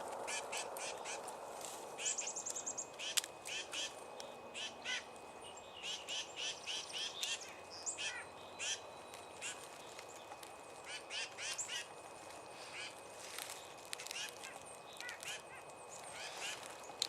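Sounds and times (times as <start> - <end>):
small birds chirping: 0.2 - 17.0
bird trill: 2.0 - 17.0.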